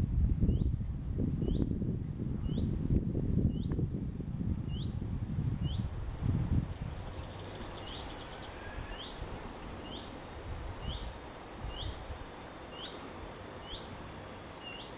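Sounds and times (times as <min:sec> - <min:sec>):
wind rushing: 0:00.0 - 0:12.3
wind buffeting microphone: 0:00.0 - 0:12.4
bird trill: 0:07.0 - 0:09.2, 0:09.8 - 0:10.1, 0:12.7 - 0:13.0, 0:13.6 - 0:13.9, 0:14.6 - 0:14.9
songbird upward-sliding call: 0:07.0 - 0:10.2.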